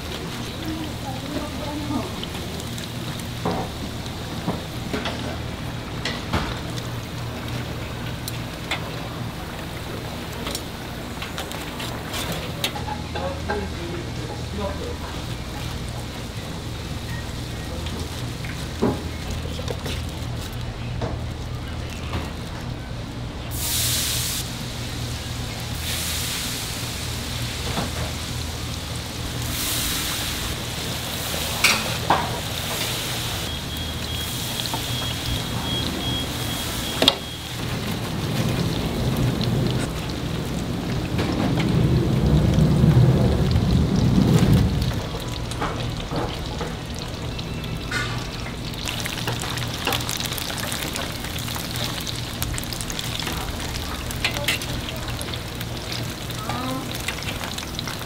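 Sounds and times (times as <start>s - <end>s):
food sizzling in hot oil: 0.0s - 20.5s, 23.5s - 58.0s
low rumble: 37.8s - 47.1s.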